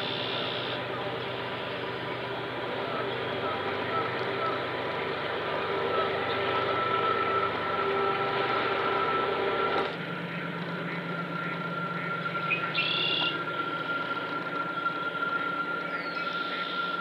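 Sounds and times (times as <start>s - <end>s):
bird call: 0.0s - 0.8s, 10.2s - 17.0s
faint hum: 0.0s - 17.0s.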